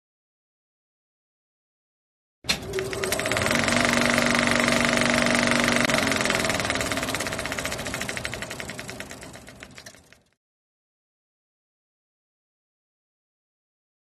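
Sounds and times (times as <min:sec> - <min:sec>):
pulsing engine-like mechanical sound: 0:02.5 - 0:10.4.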